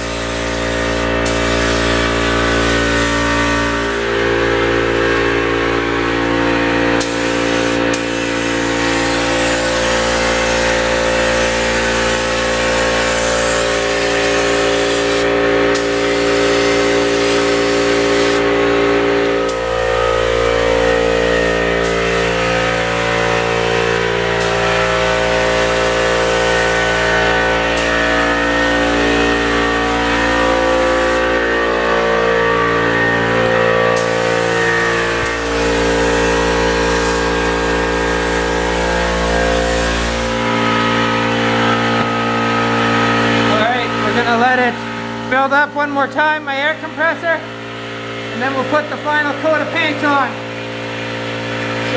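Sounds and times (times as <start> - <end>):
spray gun hissing: 0.0 - 4.2, 7.0 - 31.8, 32.8 - 43.5
air compressor running: 0.0 - 51.9.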